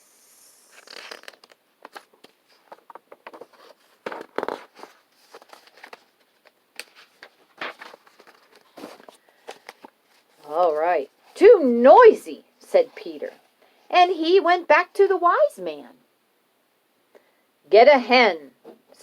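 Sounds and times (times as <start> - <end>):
paper rustling: 0.9 - 11.4.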